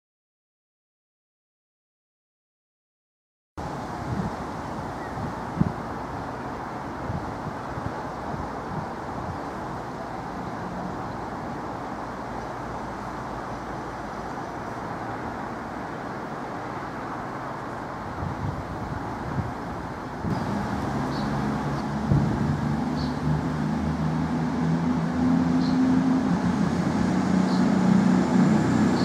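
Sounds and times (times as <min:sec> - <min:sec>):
wind thumping on microphone: 0:03.6 - 0:06.1, 0:06.9 - 0:09.4, 0:18.1 - 0:29.0
diesel train approaching: 0:19.1 - 0:29.0.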